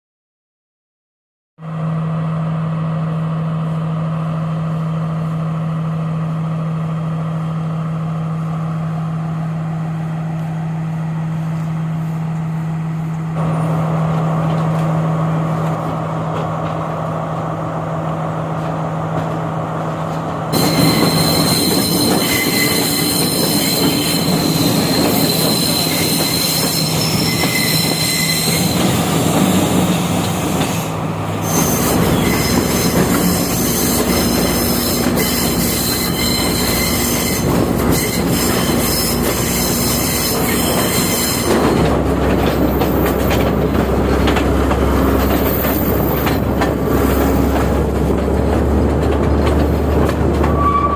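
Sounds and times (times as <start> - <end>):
train engine hum: 1.6 - 50.9
train running noise: 1.7 - 50.9
wheel squeal: 20.5 - 43.6, 45.2 - 47.9, 49.4 - 50.9.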